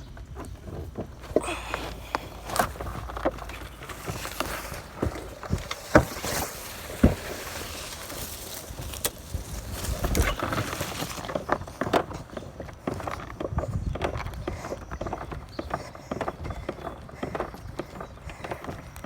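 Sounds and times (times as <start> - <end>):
footsteps: 0.4 - 19.0
air conditioner knocking and rattling: 2.3 - 11.3.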